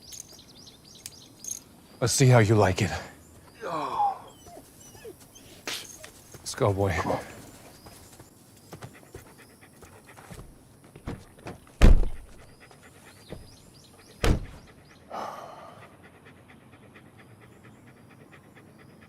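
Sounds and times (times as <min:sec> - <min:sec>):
dog panting: 0:08.7 - 0:10.5, 0:12.2 - 0:19.0
heavy thuds: 0:10.4 - 0:12.4, 0:14.2 - 0:14.7.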